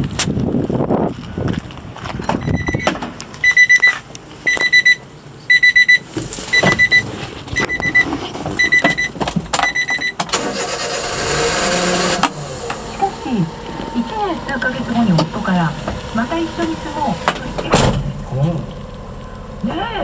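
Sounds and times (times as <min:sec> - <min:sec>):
electronic warning beeper: 0:02.4 - 0:03.9, 0:04.5 - 0:07.0, 0:07.6 - 0:08.0, 0:08.6 - 0:10.2, 0:12.8 - 0:18.3
steady motor-like hum: 0:11.0 - 0:20.0.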